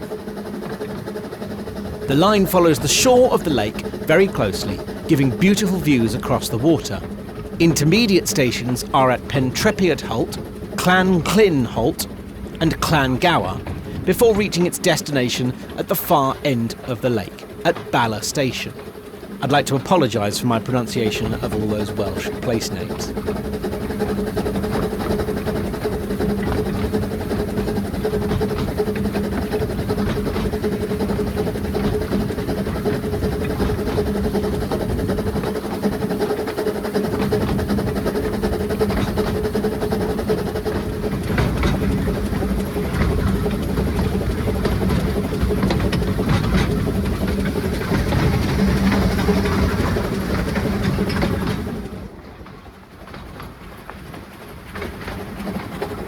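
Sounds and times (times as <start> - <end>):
wheels clicking over rail joints: 0.0 - 5.5, 11.6 - 12.6, 13.5 - 14.4, 21.2 - 56.0
steam train rumbling on track: 0.0 - 56.0.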